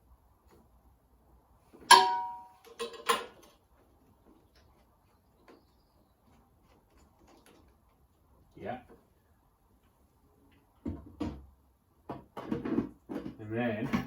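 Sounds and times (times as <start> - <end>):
metal clank ringing: 1.9 - 3.4.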